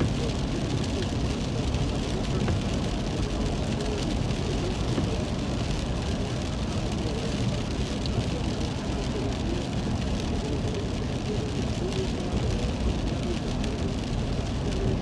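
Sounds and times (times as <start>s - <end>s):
moving car road and engine noise: 0.0s - 15.0s
steady rain: 0.0s - 15.0s.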